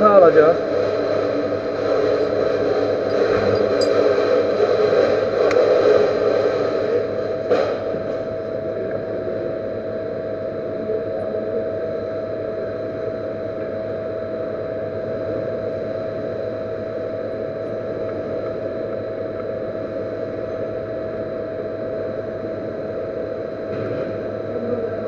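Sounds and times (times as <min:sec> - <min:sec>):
metal lathe whining: 0:00.4 - 0:07.2.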